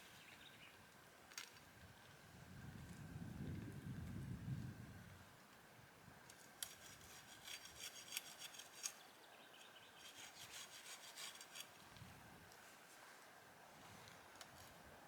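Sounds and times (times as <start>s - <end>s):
hand tool scraping wood: 6.6s - 9.0s, 10.0s - 11.8s.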